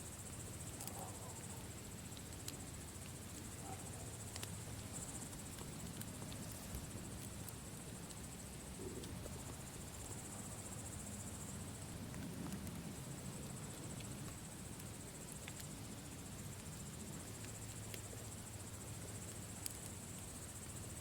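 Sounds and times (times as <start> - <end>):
insects chirping: 0.0 - 21.0
campfire crackling and popping: 1.5 - 3.6, 4.2 - 10.3, 11.4 - 21.0.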